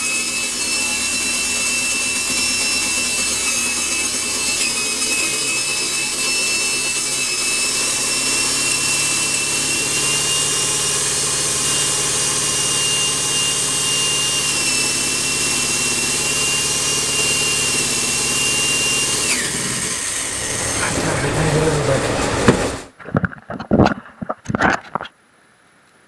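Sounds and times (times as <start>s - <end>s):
power tool motor whining: 0.0s - 23.0s.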